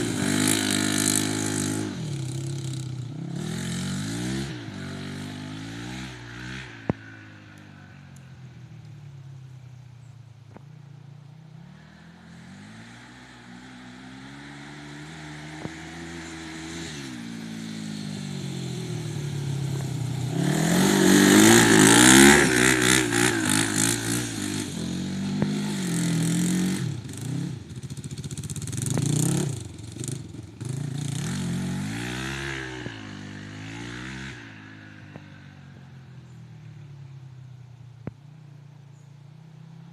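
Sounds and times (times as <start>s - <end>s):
quad engine revving: 0.0s - 7.4s, 11.6s - 35.4s.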